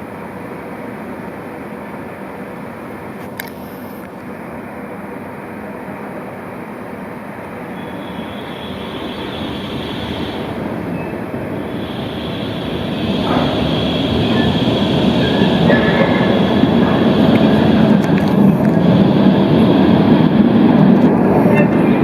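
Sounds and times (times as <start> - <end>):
tram rolling on rails: 0.0 - 22.0
high steady whine: 7.4 - 22.0.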